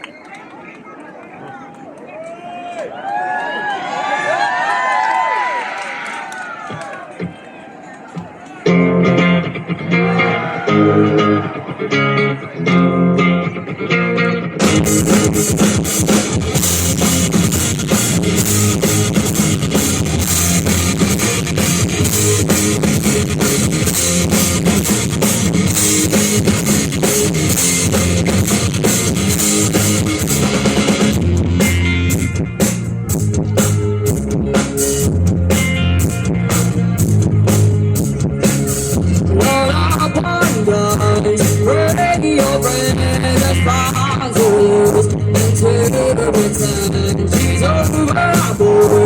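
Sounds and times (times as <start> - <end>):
bass guitar: 8.6 - 49.0
electric guitar: 8.6 - 49.0
drum kit with cymbals: 14.6 - 49.0.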